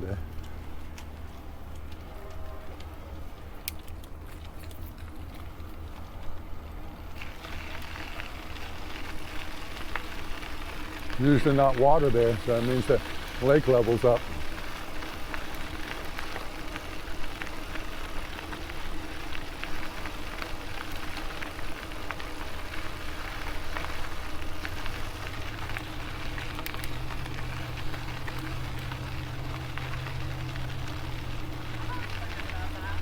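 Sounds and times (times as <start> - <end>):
light clicks and rattles: 0.0 - 6.4
electric bike motor hum: 0.0 - 33.0.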